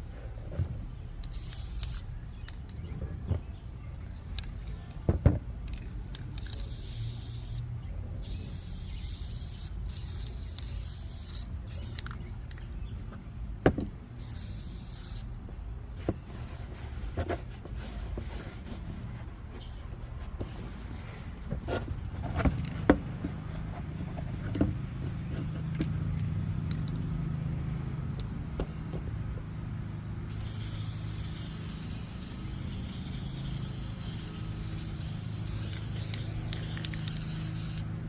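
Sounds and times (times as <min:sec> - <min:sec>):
spray paint can hissing: 0:01.2 - 0:02.0, 0:06.4 - 0:07.6, 0:08.2 - 0:12.1, 0:14.2 - 0:15.3, 0:30.3 - 0:37.9.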